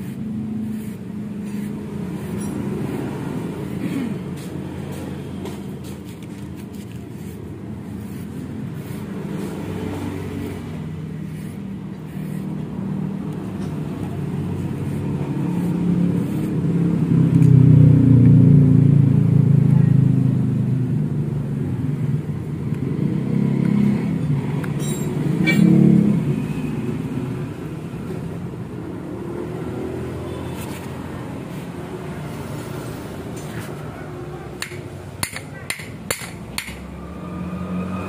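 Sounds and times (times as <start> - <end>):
vehicle engine running: 0.0 - 24.4.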